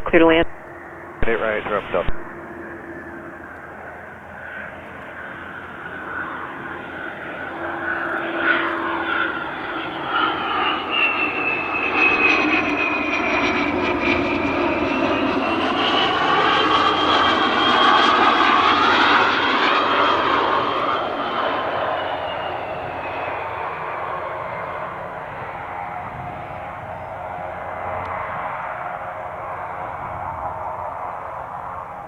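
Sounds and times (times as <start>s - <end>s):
jet engines whining: 0.0s - 32.0s.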